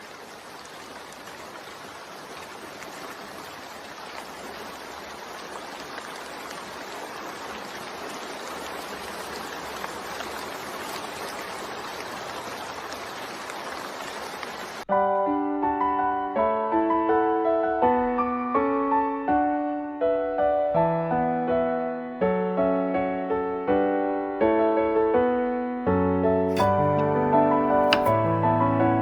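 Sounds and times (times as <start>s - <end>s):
steady rain falling: 0.0s - 14.9s.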